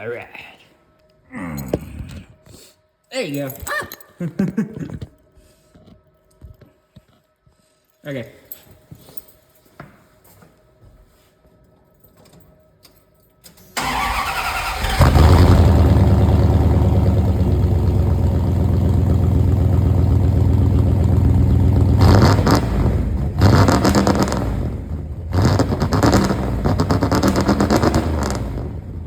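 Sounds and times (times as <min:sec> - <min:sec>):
starter motor cranking: 0:13.8 - 0:16.4
engine revving: 0:13.8 - 0:29.0
pickup truck engine running: 0:13.8 - 0:29.0.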